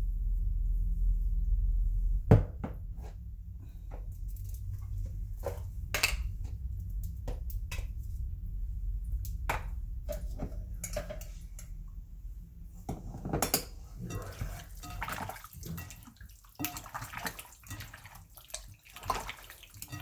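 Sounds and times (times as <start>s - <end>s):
steady low hum: 0.0s - 15.1s
dishes and utensils clinking: 10.1s - 11.7s, 12.9s - 18.2s, 19.0s - 20.0s.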